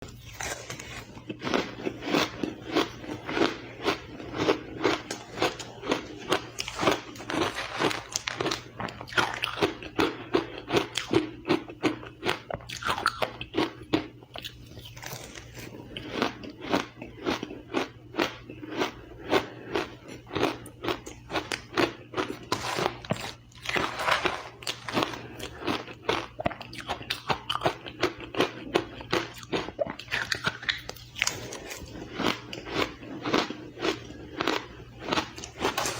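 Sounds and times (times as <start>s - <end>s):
chewing crushed ice: 0.0s - 35.9s.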